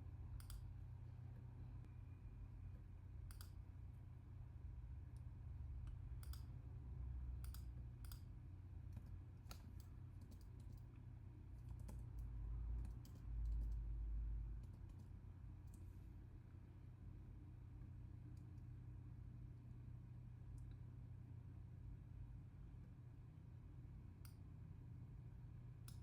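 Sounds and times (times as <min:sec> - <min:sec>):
mouse and keyboard clicks: 0:03.3 - 0:03.6, 0:07.4 - 0:08.3, 0:08.9 - 0:10.9.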